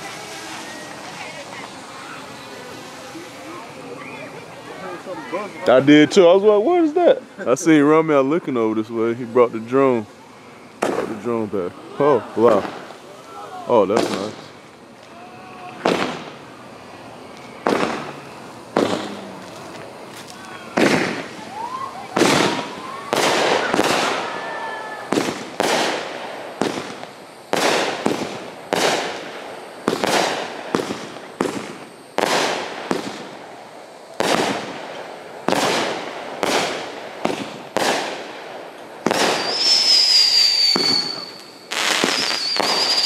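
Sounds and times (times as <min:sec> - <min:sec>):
fireworks bangs: 0:00.0 - 0:43.0
shrill firework whistle: 0:20.4 - 0:25.9, 0:39.1 - 0:43.0.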